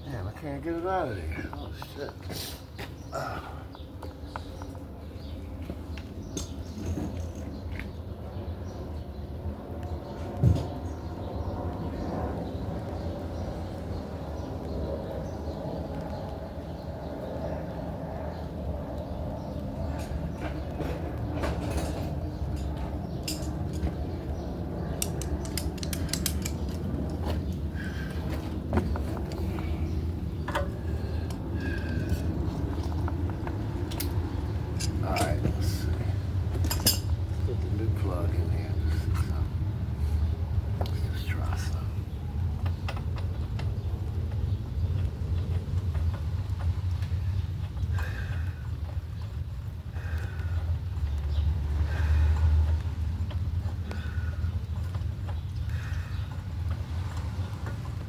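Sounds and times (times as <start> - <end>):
steady low hum: 0.0 - 57.3
hand tools clinking on metal: 21.5 - 23.9, 25.0 - 26.9, 33.9 - 35.9, 36.6 - 37.2.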